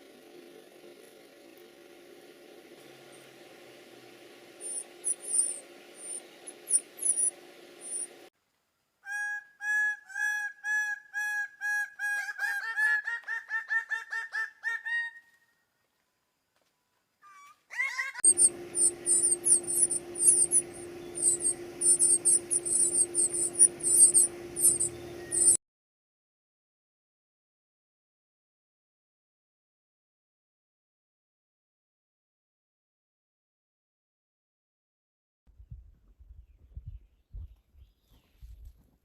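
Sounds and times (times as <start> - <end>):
steady hum: 0.0 - 8.3, 18.2 - 25.6
high-pitched bird chirping: 4.6 - 8.1, 17.8 - 25.6
whistled bird notes: 4.6 - 8.1, 18.2 - 25.6.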